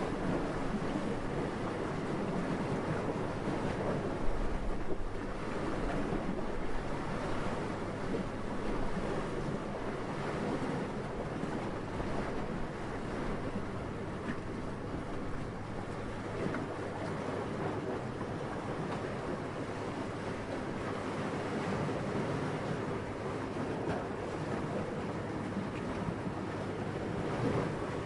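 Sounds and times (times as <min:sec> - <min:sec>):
gusting wind: 0:00.0 - 0:28.0
surf rushing: 0:00.0 - 0:28.0.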